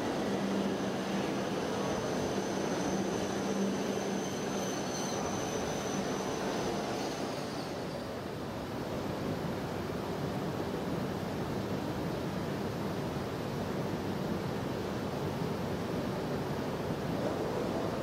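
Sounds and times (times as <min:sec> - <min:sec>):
train rumbling past: 0:00.0 - 0:08.6
faint high whine: 0:00.0 - 0:09.3.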